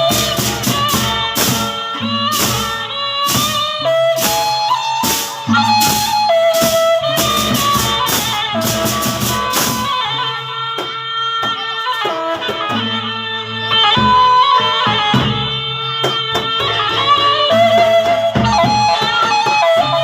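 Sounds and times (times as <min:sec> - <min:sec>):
large drums beating: 0:00.0 - 0:10.2
cymbals clashing: 0:00.0 - 0:20.0
wind instrument melody: 0:00.0 - 0:20.0.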